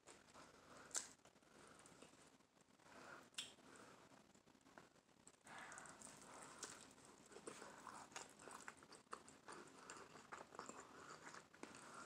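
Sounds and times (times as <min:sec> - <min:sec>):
chewing: 0:05.3 - 0:12.0.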